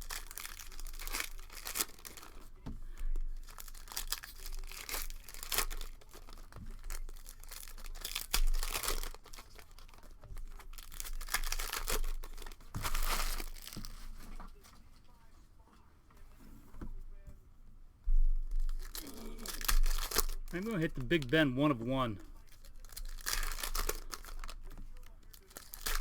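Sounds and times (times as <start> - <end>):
card pack wrappers tearing and crinkling: 0.0 - 14.3, 18.6 - 26.0.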